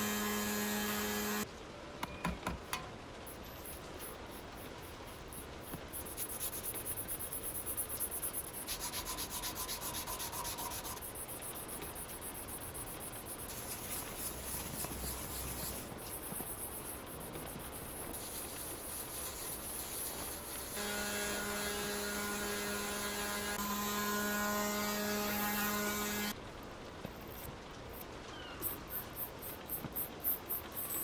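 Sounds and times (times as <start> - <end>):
scrubbing rusty steel trowel: 6.0 - 23.6.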